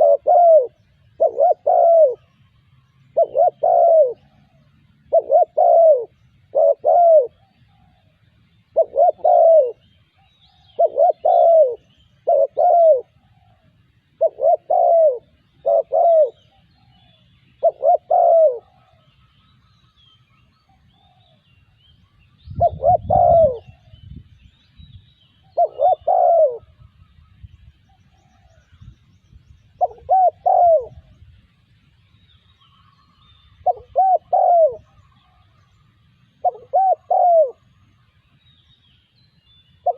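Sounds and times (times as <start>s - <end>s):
dove cooing: 0.0s - 19.2s, 22.5s - 23.9s, 25.5s - 26.9s, 29.8s - 31.1s, 33.6s - 35.6s, 36.3s - 37.7s.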